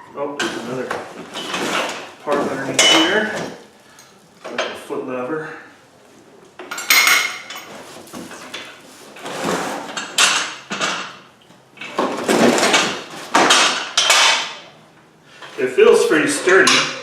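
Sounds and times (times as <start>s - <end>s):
metal parts scraping and clattering: 0.4s - 4.2s.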